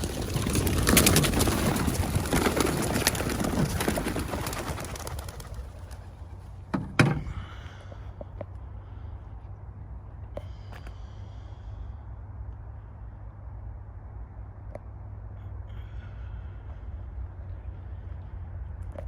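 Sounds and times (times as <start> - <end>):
pigeon wings clattering: 0.0 - 7.1.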